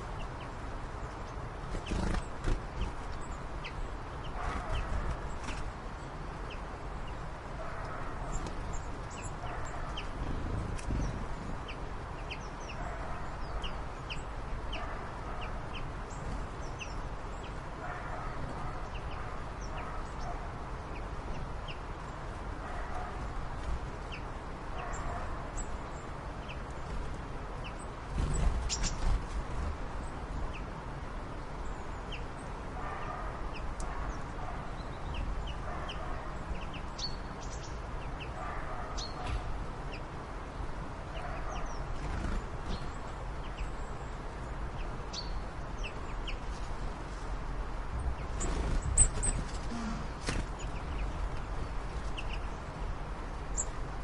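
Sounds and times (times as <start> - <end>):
birds clucking and chirping: 1.2 - 5.7, 22.6 - 30.7, 48.0 - 53.9.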